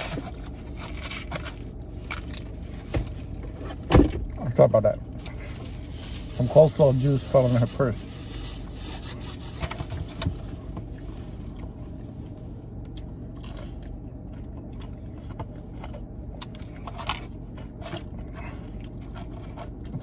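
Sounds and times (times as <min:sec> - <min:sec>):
air conditioning hum: 0:00.0 - 0:20.0
person chewing fried fish: 0:12.8 - 0:20.0.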